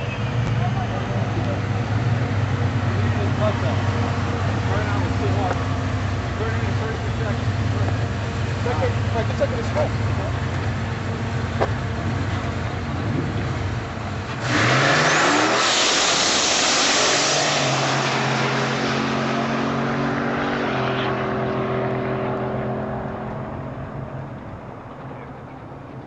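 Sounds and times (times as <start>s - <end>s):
car engine launching and revving: 12.9s - 24.4s.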